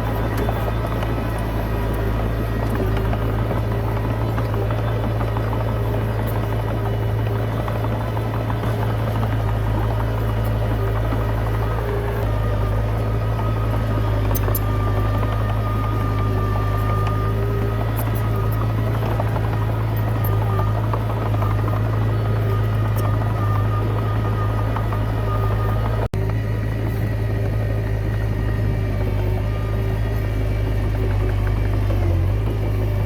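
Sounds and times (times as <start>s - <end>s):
bulldozer diesel engine droning: 0.0s - 33.0s.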